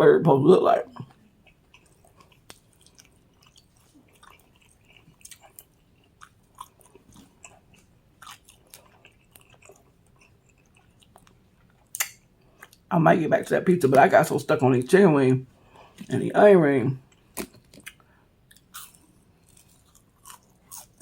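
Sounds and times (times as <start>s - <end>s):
chewing fried chicken: 1.0s - 12.9s, 17.0s - 21.0s
wet mouth clicks and smacks: 2.3s - 3.0s.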